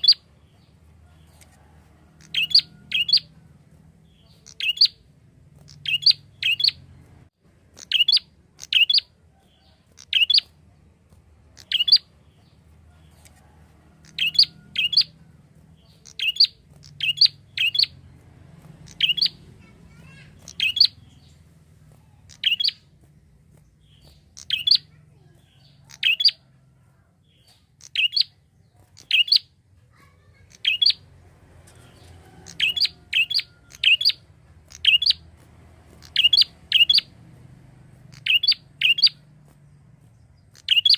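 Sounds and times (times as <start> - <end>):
bird chirping sharply: 0.0 - 0.7, 1.6 - 3.4, 4.1 - 5.0, 5.6 - 10.5, 11.5 - 12.6, 15.8 - 21.4, 22.3 - 26.4, 27.3 - 31.2, 31.8 - 35.3, 35.9 - 37.3, 38.0 - 39.2, 40.4 - 40.9.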